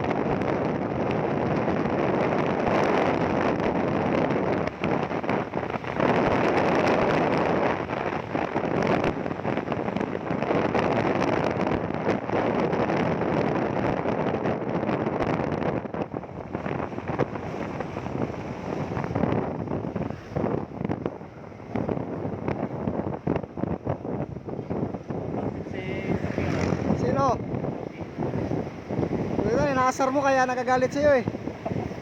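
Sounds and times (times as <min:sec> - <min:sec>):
wind buffeting microphone: 0:00.0 - 0:32.0
motorcycle engine: 0:24.5 - 0:29.4.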